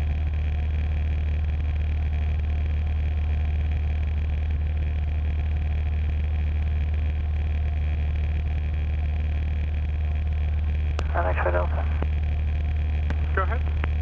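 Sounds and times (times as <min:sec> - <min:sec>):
airplane engine droning: 0:00.0 - 0:14.0
low hum: 0:00.0 - 0:14.0.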